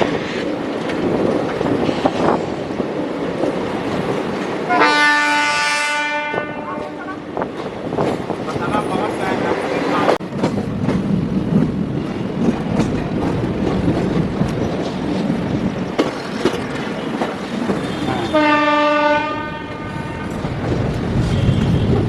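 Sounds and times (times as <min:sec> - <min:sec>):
locomotive horn: 0:04.7 - 0:07.3, 0:17.9 - 0:20.3, 0:21.2 - 0:22.0
train wheels clattering: 0:10.0 - 0:22.0.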